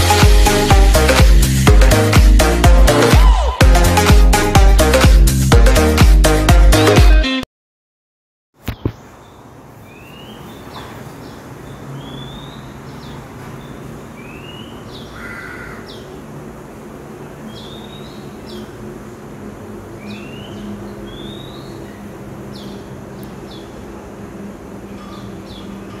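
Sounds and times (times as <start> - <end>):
outdoor background hum: 8.6 - 26.0.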